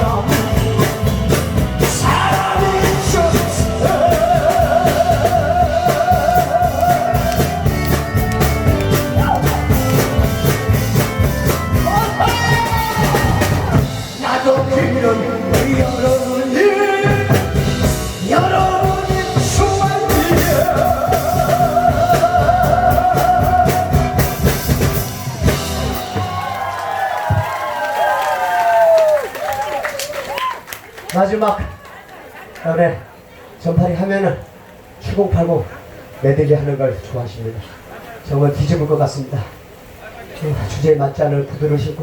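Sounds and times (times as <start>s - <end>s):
person singing with vibrato: 0.0s - 8.0s, 11.8s - 24.7s
drums keeping a steady beat: 0.0s - 27.8s.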